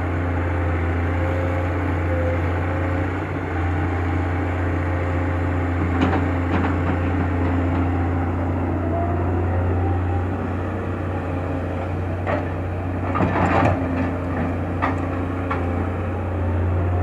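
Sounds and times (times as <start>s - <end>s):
excavator diesel engine: 0.0s - 17.0s.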